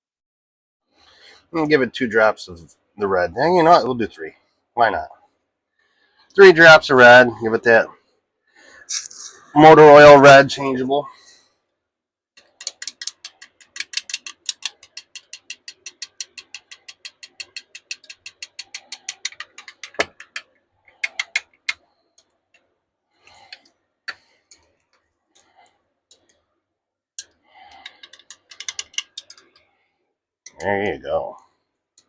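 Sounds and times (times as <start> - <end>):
stirring clicks in a cup: 12.4 - 22.6, 27.2 - 29.7.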